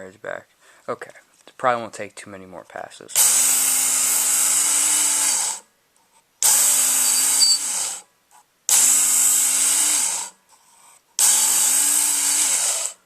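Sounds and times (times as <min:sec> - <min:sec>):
belt sharpener motor humming: 0:03.2 - 0:05.6, 0:06.4 - 0:08.0, 0:08.7 - 0:10.4, 0:11.2 - 0:13.0
belt grinding knife blade: 0:07.0 - 0:07.8.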